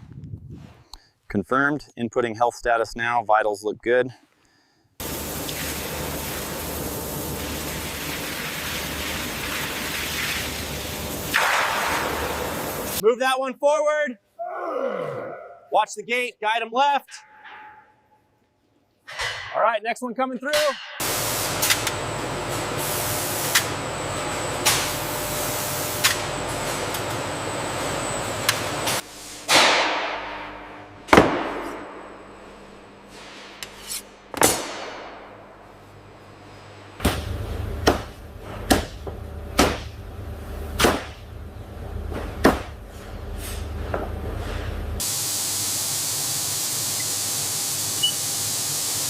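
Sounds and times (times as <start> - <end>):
low machine hum: 21.0 - 45.1.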